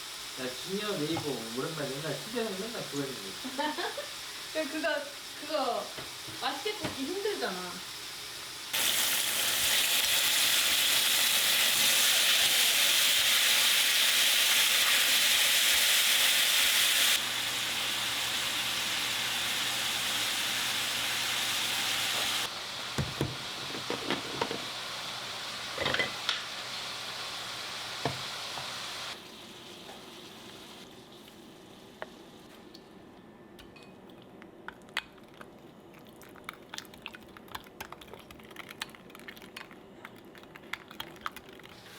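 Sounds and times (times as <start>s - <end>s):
meat sizzling in a pan: 0.0s - 32.2s.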